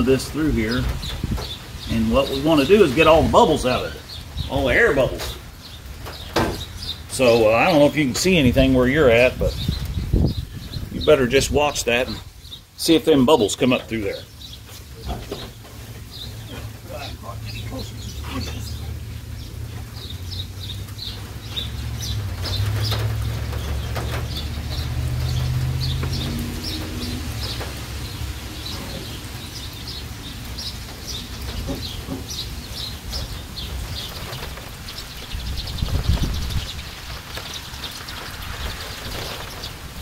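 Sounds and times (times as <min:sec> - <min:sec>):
small birds chirping: 0:00.0 - 0:40.0
dull thump: 0:06.1 - 0:06.7.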